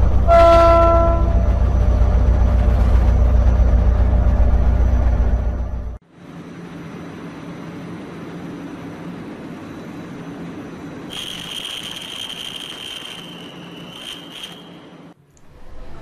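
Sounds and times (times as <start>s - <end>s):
electric train running hum: 0.0s - 16.0s
high-pitched squeal: 11.1s - 15.1s.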